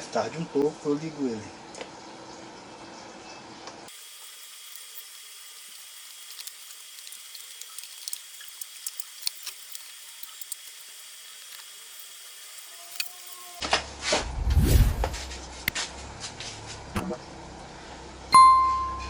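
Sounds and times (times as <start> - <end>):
small parts clicking and tapping: 3.9 - 13.6
steady hiss: 3.9 - 13.6.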